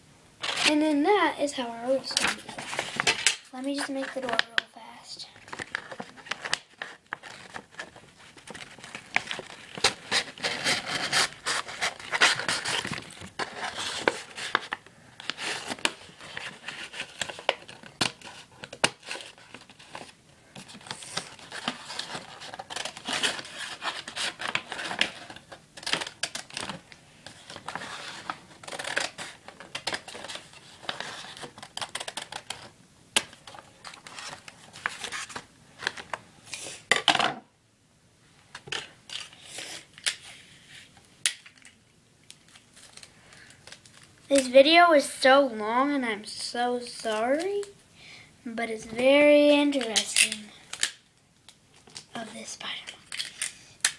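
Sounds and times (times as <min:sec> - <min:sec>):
paper rustling and crinkling: 0:00.4 - 0:01.0, 0:01.6 - 0:36.8, 0:42.3 - 0:44.6.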